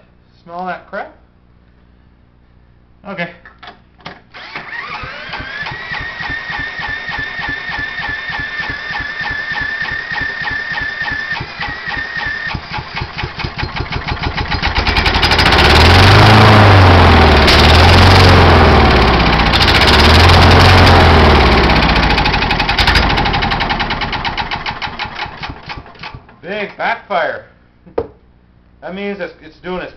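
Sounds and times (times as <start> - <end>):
drill motor whine: 4.4 - 12.5
small engine running in surges: 4.4 - 23.8
engine cranking: 4.4 - 26.4.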